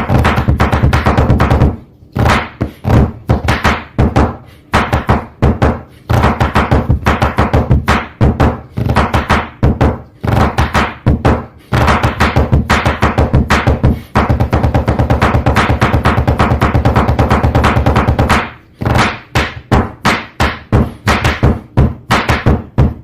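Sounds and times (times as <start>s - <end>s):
music with heavy drum beat: 4.9s - 23.0s.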